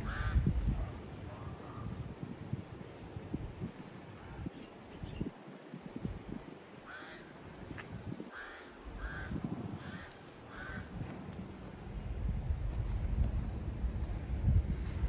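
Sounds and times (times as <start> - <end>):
birds calling: 6.8 - 11.0.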